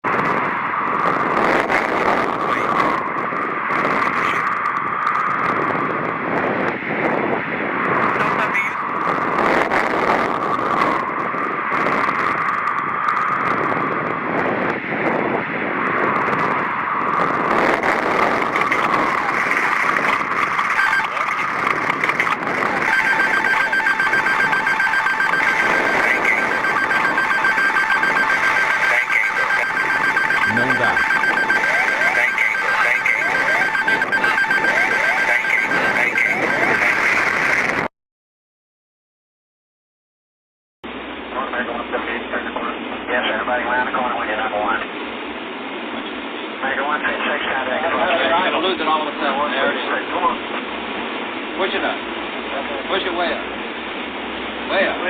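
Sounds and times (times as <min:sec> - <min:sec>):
steady cockpit noise: 0:16.4 - 0:37.9
rapidly pulsing warning alarm: 0:17.8 - 0:37.2.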